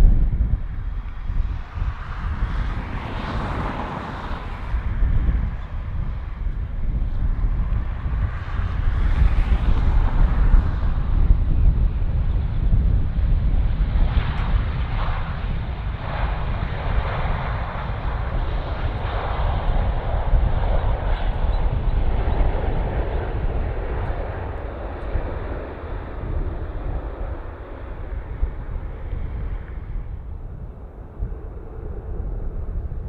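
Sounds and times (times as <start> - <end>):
jet airliner engines passing: 0.0 - 33.0
low rumble: 0.0 - 33.0.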